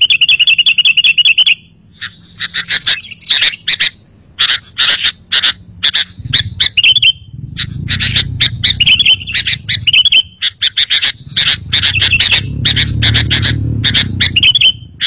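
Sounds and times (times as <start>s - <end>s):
bird chirping and warbling: 0.0s - 15.0s
low hum: 5.6s - 15.0s.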